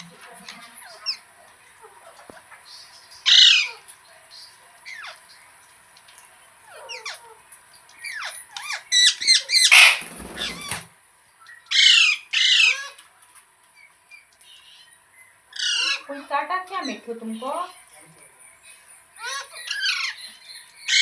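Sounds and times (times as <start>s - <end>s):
parrot squawking and screeching: 8.9s - 10.9s, 11.7s - 12.8s, 15.5s - 16.1s.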